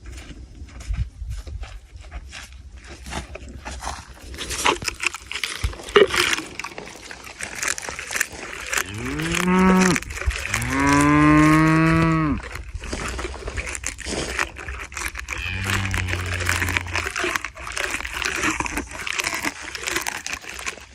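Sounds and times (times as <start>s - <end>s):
camel chewing and crunching: 0.0s - 20.9s
camel moaning calls: 8.7s - 12.5s, 15.2s - 17.5s.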